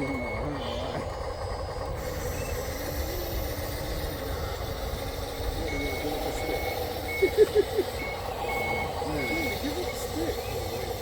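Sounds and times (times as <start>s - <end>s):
reversing alarm beeping: 0.0s - 1.3s, 1.9s - 11.0s.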